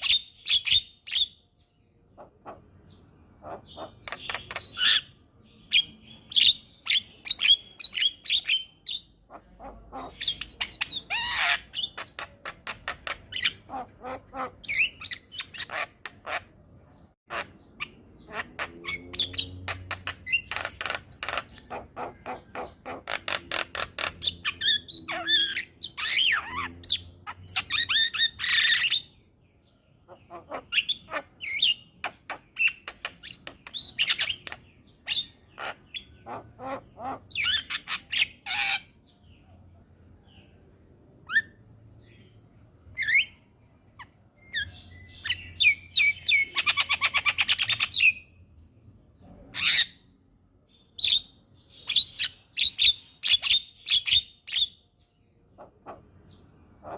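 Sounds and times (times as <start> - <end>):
myna bird chattering song: 0.0 - 39.6, 41.2 - 48.4, 49.2 - 50.1, 50.7 - 56.9.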